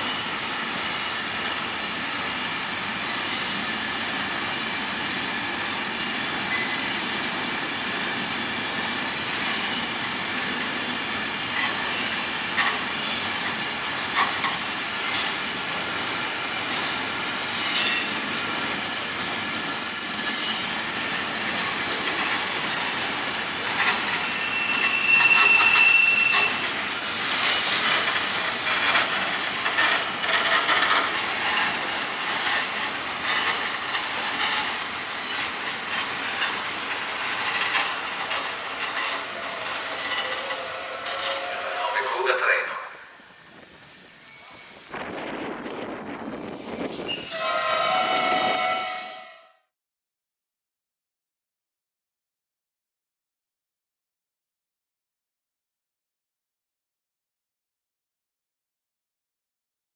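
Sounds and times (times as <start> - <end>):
wheel squeals against rails: 4.6 - 7.2, 8.8 - 10.0, 11.6 - 13.2, 14.2 - 16.4, 17.0 - 49.2
train wheels clattering over rail joints: 27.5 - 41.4.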